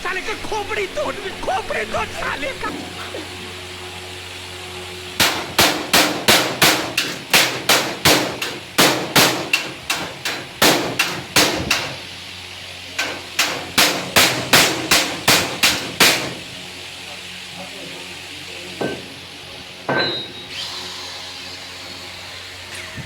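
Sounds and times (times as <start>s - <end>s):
hammer blows: 5.0s - 12.3s, 12.9s - 16.7s, 19.8s - 20.7s.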